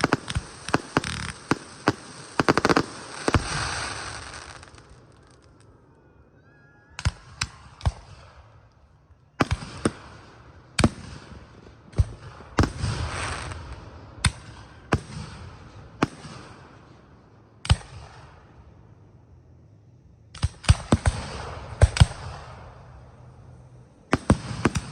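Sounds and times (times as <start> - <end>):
fireworks crackling fizz: 0.0 - 5.7, 12.0 - 14.4
fireworks bangs: 0.0 - 5.8, 9.4 - 18.5, 20.4 - 24.9.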